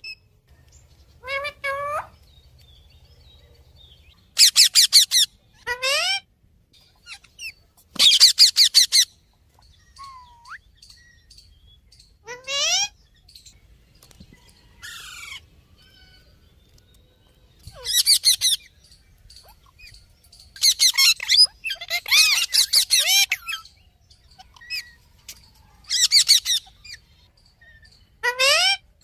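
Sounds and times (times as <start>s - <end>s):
parrot calling: 1.2s - 2.2s, 4.3s - 6.3s, 7.0s - 9.2s, 9.9s - 11.1s, 12.2s - 13.0s, 17.7s - 18.7s, 20.6s - 23.7s, 25.8s - 28.9s.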